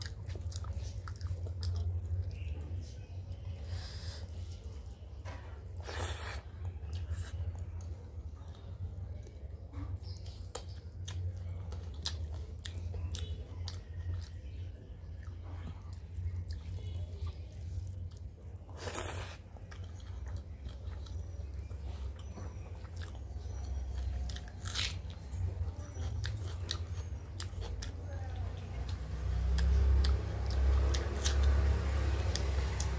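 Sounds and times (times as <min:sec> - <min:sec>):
person chewing: 0:00.0 - 0:02.6, 0:10.0 - 0:14.4, 0:15.1 - 0:28.0.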